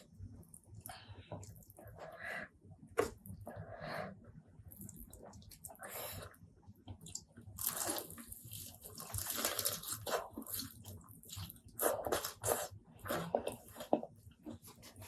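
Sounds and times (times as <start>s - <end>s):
wet chewing with crunches: 6.9s - 15.0s.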